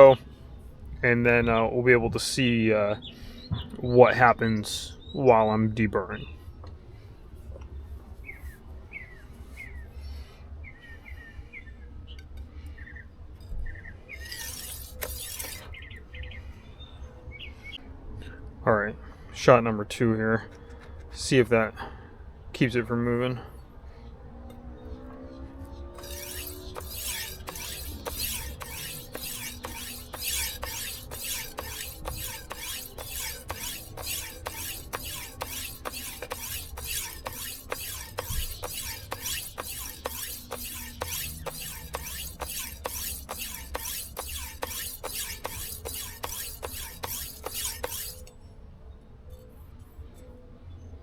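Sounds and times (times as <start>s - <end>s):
knife scraping on whetstone: 14.2s - 15.7s, 25.9s - 48.3s.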